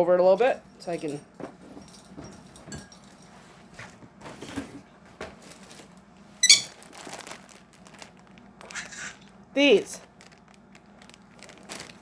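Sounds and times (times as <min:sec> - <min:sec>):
rustling and crinkling: 0:01.5 - 0:12.0
pet bird squawk: 0:06.4 - 0:06.7, 0:08.7 - 0:09.2.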